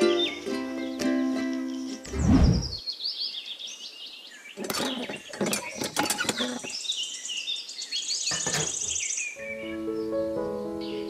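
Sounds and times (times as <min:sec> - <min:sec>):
birds chirping: 0:00.0 - 0:11.0
light clinks and knocks: 0:04.6 - 0:06.7.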